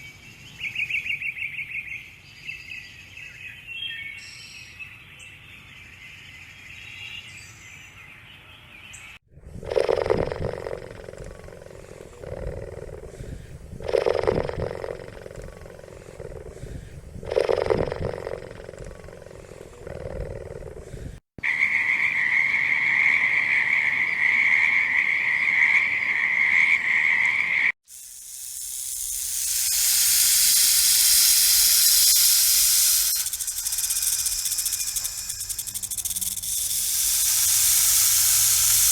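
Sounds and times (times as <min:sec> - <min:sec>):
animal roars: 0:09.6 - 0:21.2
hiss: 0:27.8 - 0:38.9
high-pitched animal call: 0:28.5 - 0:38.9.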